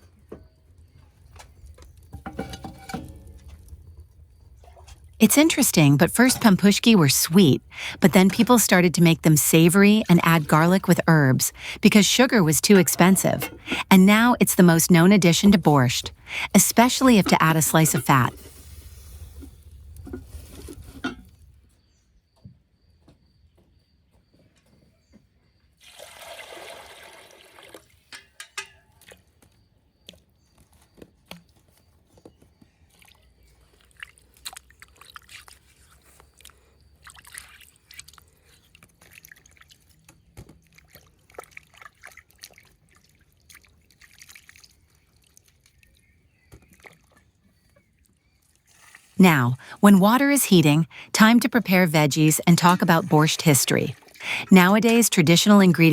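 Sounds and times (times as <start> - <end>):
water pouring: 4.6 - 21.1, 25.8 - 28.0.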